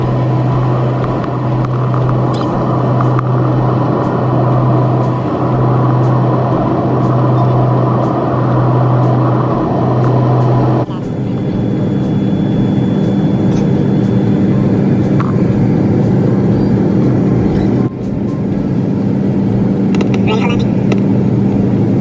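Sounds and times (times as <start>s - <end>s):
airplane engine drone: 0.0s - 22.0s.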